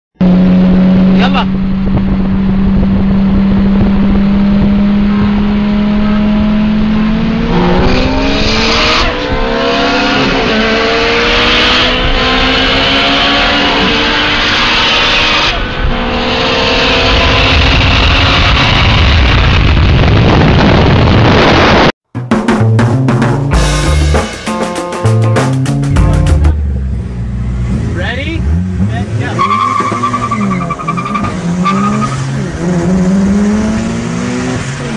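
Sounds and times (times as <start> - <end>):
car engine accelerating hard: 0.2 - 21.9, 26.6 - 34.9.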